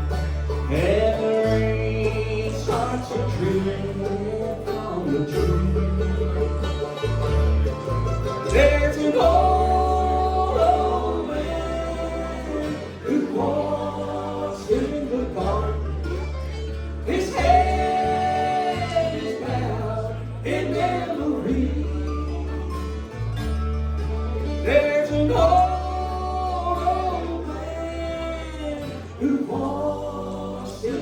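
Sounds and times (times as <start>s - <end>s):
bluegrass band playing: 0.0s - 31.0s
person singing: 8.5s - 16.1s, 17.1s - 23.0s, 24.6s - 31.0s.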